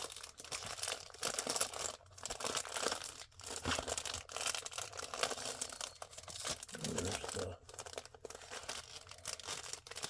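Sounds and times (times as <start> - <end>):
packaging crinkling and tearing: 0.0 - 10.0.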